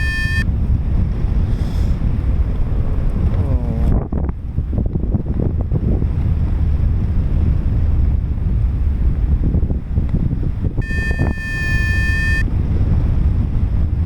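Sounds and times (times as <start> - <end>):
high-pitched electronic tone: 0.0 - 0.5, 10.8 - 12.5
wind buffeting microphone: 0.0 - 14.0.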